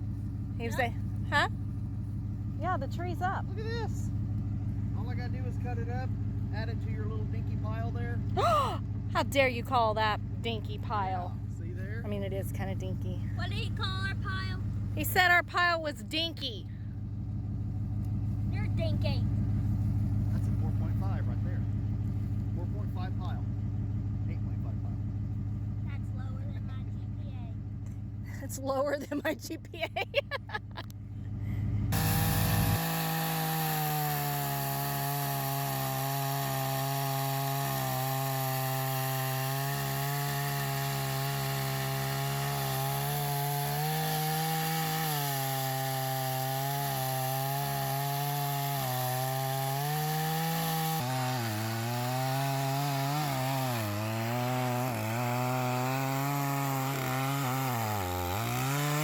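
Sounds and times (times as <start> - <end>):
chainsaw cutting wood: 0.0 - 6.7, 31.9 - 59.0.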